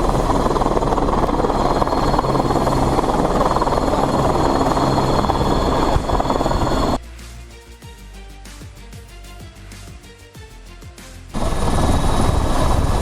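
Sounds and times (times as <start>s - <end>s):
helicopter rotor and engine: 0.0s - 7.0s, 11.4s - 13.0s.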